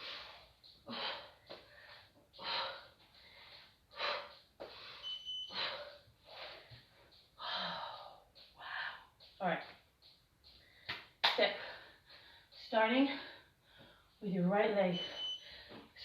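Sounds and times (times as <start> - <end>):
high beep: 5.0 - 5.6, 14.9 - 15.5.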